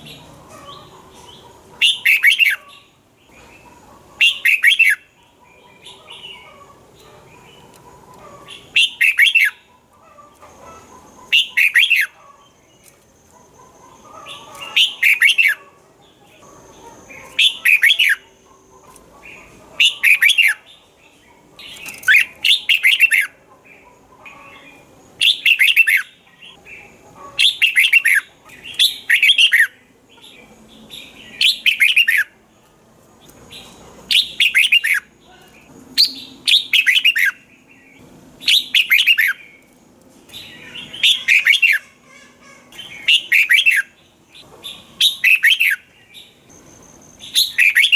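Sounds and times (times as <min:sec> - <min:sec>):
bulbul singing warbling phrases: 0:14.1 - 0:18.4, 0:40.5 - 0:46.4.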